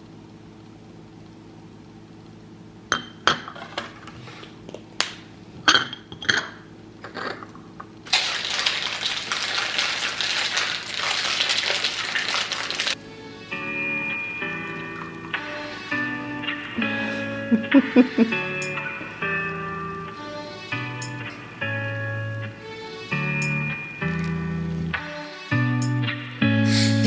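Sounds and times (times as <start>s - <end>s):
dishes and utensils clinking: 5.6s - 7.6s
steady hiss: 8.0s - 27.0s.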